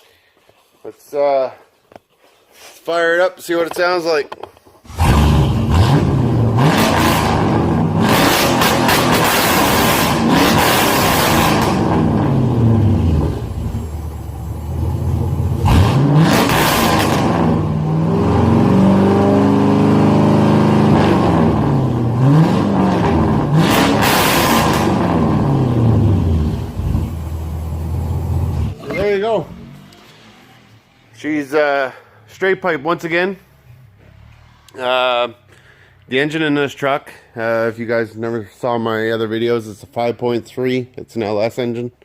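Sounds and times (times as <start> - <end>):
truck engine revving: 4.9 - 30.7.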